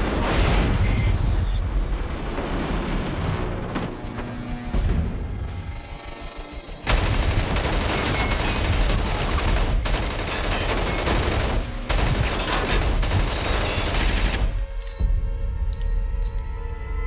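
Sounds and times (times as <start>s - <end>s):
rapid automatic gunfire: 6.9s - 14.8s.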